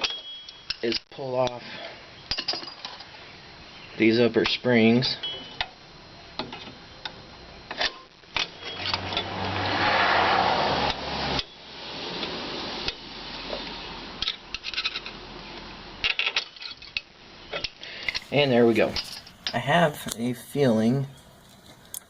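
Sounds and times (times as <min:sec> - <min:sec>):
metal tools clinking: 0:02.3 - 0:03.1, 0:16.0 - 0:19.6.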